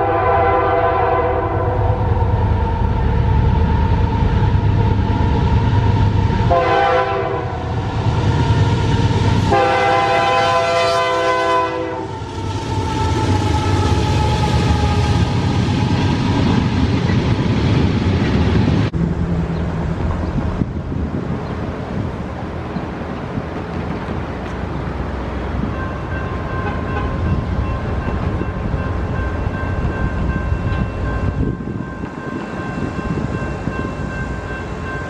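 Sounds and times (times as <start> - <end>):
locomotive air horn: 0.0 - 2.0, 6.5 - 7.7, 9.4 - 15.6, 26.5 - 27.3
passing train rumble: 0.0 - 35.0.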